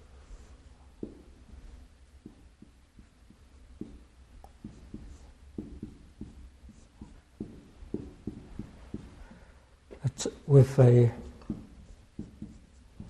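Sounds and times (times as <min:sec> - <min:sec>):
pen writing on paper: 0:04.6 - 0:09.2, 0:11.3 - 0:13.0.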